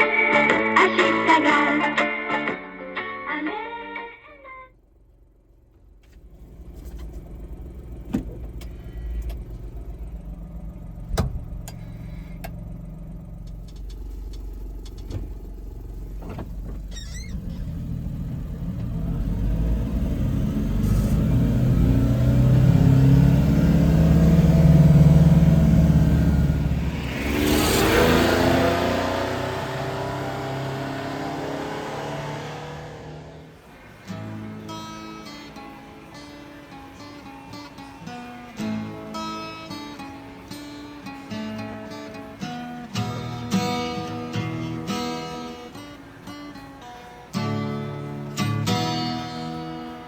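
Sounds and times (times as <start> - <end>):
small truck engine accelerating: 0.0 - 50.0
sharp clicks and knocks: 13.4 - 15.3.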